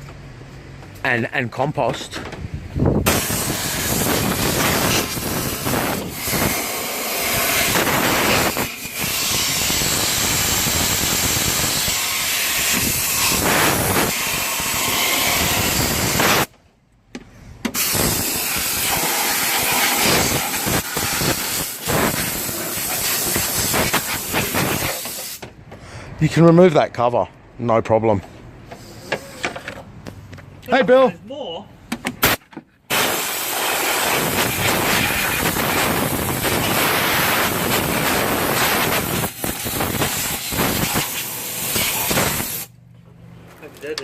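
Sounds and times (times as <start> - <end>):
compressed air blow gun hissing: 3.0 - 16.5, 17.7 - 25.4, 32.2 - 42.7.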